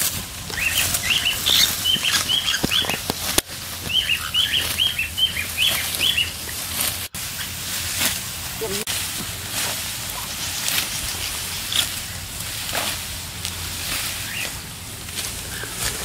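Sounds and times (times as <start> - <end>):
rice stalks rustling: 0.0 - 16.0
sickle cutting stalks: 0.0 - 16.0
small bird chirping: 0.5 - 3.1, 3.8 - 6.4.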